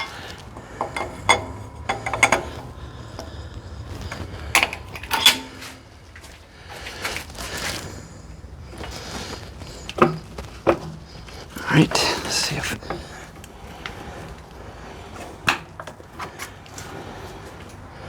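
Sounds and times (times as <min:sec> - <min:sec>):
metallic clinks and knocks: 0:00.0 - 0:06.0.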